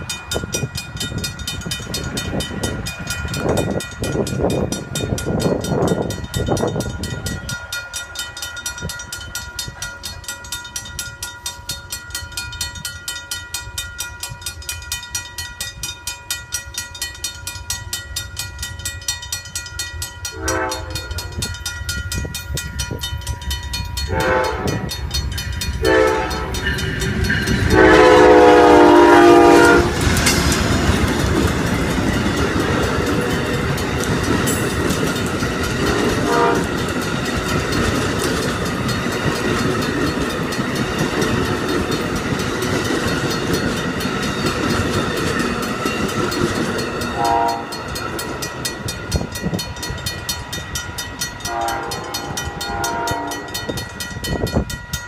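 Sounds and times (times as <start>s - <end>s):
railroad crossing bell ringing: 0.0s - 55.0s
train rumble and wheel clatter: 0.0s - 55.0s
train horn blasts: 20.3s - 21.3s, 24.0s - 25.0s, 25.8s - 30.1s, 36.2s - 36.8s, 47.2s - 47.8s, 51.4s - 53.7s.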